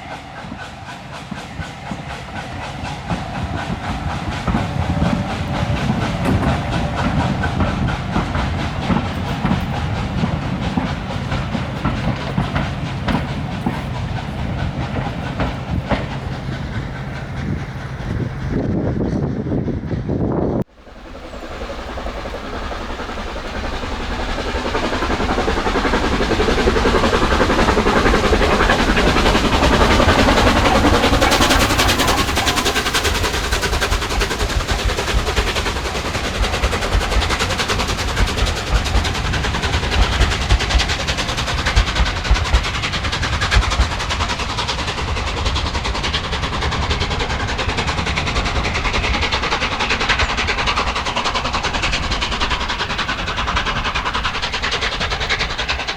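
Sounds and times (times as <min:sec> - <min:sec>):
steam locomotive exhaust beating: 0:00.0 - 0:55.9.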